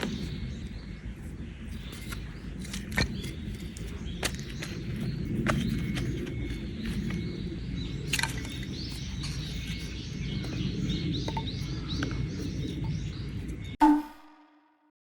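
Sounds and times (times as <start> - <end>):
small birds chirping: 0.0 - 14.3
short loud tone: 13.8 - 14.9.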